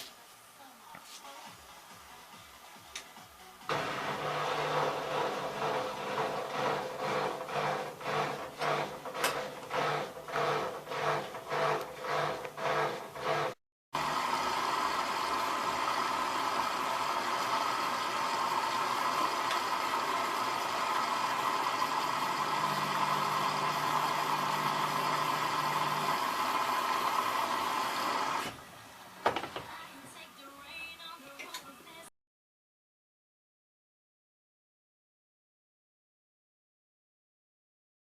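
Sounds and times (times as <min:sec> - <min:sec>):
washing machine strokes: 0:03.7 - 0:28.6
washing machine whirring: 0:03.7 - 0:29.7
click: 0:31.3 - 0:31.7.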